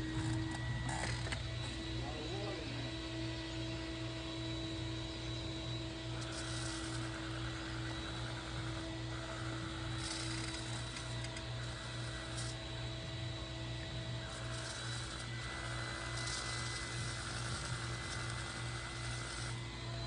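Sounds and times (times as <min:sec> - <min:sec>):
low pulsing mechanical hum: 0:00.0 - 0:20.0.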